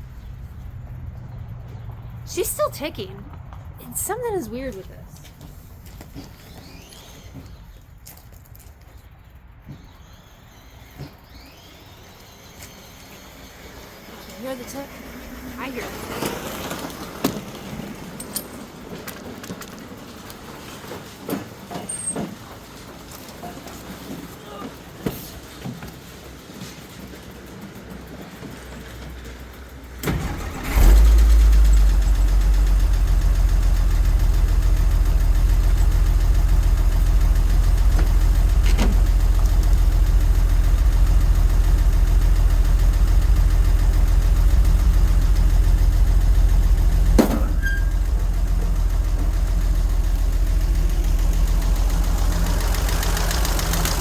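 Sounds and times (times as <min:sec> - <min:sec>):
engine starting and idling: 0:05.5 - 0:08.0, 0:09.2 - 0:54.0.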